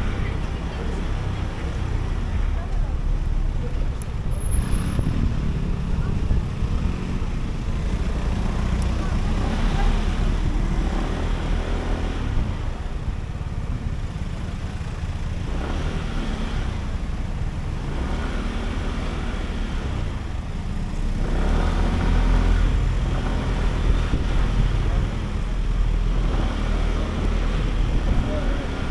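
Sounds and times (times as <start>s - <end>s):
scooter engine running: 0.0s - 16.1s.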